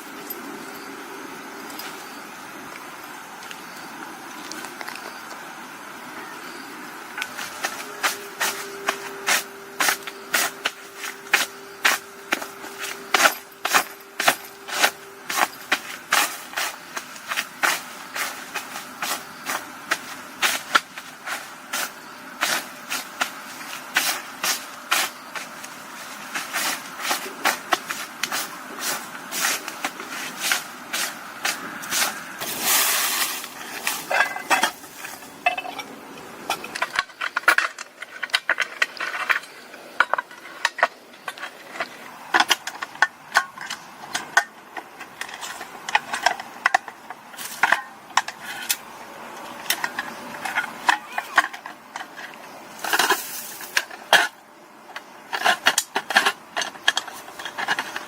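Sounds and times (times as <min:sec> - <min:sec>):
rustling: 0:07.2 - 0:42.6
hard objects knocking and clinking: 0:32.4 - 0:35.9.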